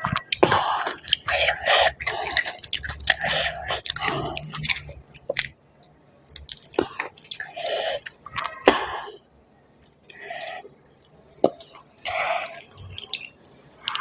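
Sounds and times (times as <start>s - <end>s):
mouth clicks: 0.0s - 8.9s.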